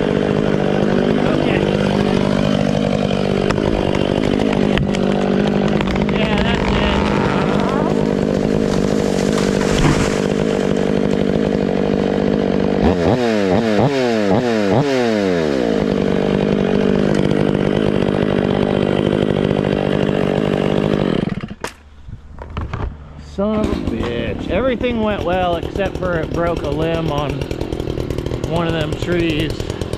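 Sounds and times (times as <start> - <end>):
chainsaw cutting at high speed: 0.0 - 21.6, 23.5 - 29.9
sharp wood snaps: 3.4 - 6.7, 8.2 - 11.2.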